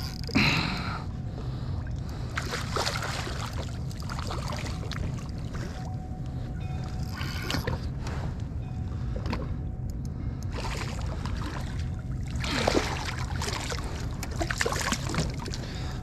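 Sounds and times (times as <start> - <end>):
water lapping and splashing: 1.4 - 8.4, 10.5 - 16.0.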